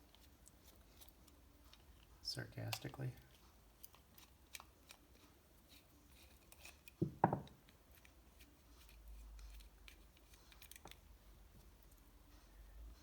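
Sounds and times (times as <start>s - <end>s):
double thump: 7.0s - 7.5s.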